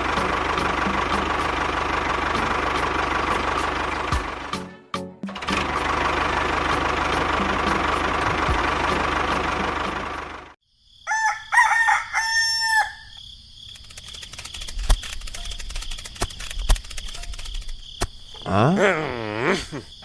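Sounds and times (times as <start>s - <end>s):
rooster crowing: 11.0s - 13.2s.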